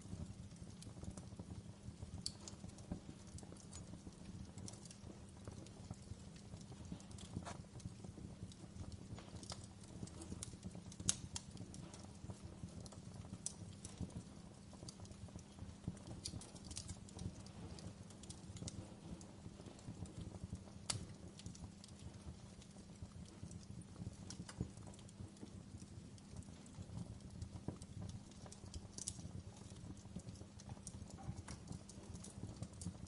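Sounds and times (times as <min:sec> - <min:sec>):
fire crackling and popping: 0:00.0 - 0:33.0
low rumble of flames: 0:00.0 - 0:33.0.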